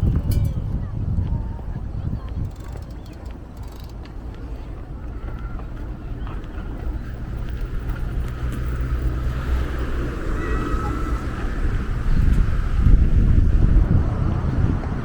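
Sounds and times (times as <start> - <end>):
motor vehicle rumbling: 0.0 - 15.0.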